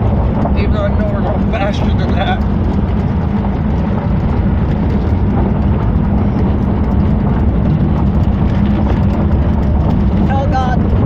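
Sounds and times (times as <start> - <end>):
wind rush and road noise: 0.0 - 11.0.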